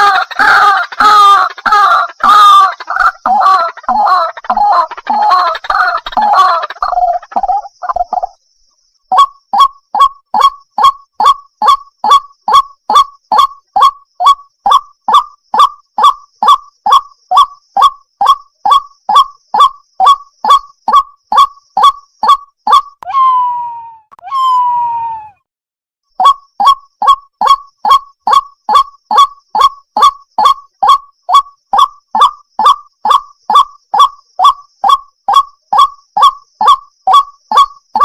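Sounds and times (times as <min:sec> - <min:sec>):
waterhen calling: 0:00.0 - 0:08.4.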